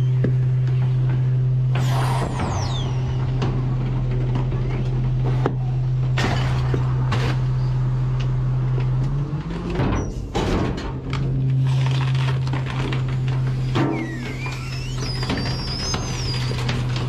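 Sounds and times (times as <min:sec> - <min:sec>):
garbage truck engine droning: 0:00.0 - 0:17.0
short hisses: 0:01.8 - 0:03.4.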